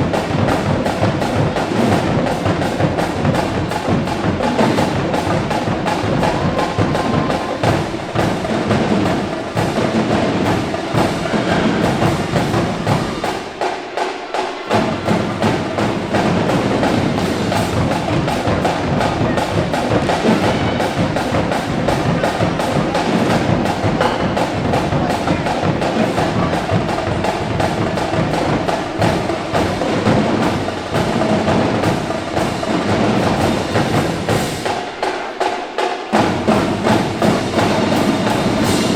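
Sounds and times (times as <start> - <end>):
marching drumline cadence: 0.0 - 38.9.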